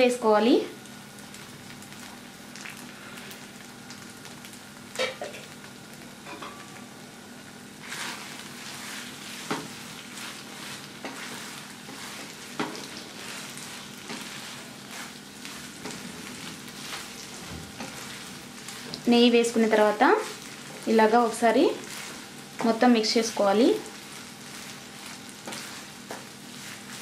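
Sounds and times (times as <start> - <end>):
food sizzling in a pan: 0.0 - 27.0
spatula stirring and scraping: 7.8 - 27.0.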